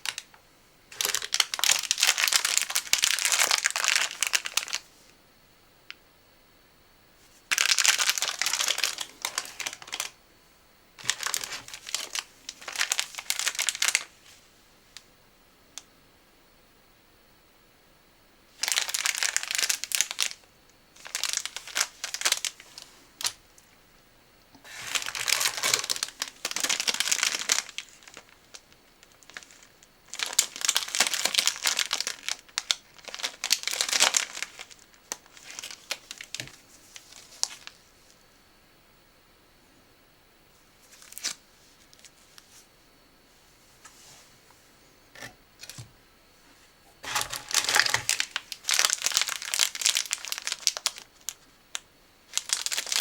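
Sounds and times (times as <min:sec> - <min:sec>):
snack packaging crinkling: 0:00.0 - 0:00.3, 0:00.9 - 0:04.8, 0:07.5 - 0:10.2, 0:11.0 - 0:14.1, 0:18.6 - 0:20.4, 0:21.0 - 0:23.4, 0:24.7 - 0:37.8, 0:40.9 - 0:42.2, 0:47.0 - 0:53.0.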